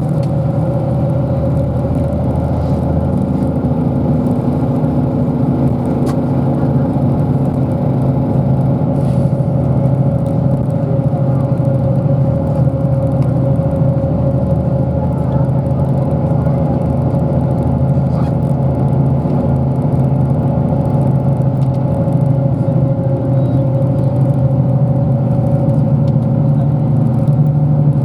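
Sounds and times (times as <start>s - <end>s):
bus engine drone: 0.0s - 28.0s
click: 21.6s - 21.9s, 26.0s - 26.3s.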